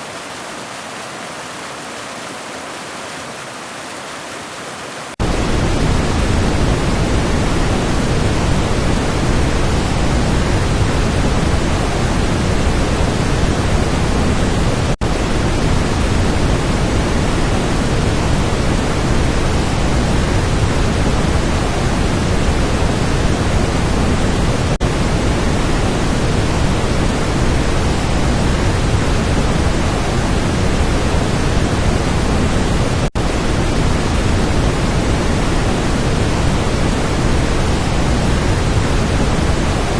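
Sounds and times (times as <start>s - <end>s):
waterfall rushing: 0.0s - 5.2s.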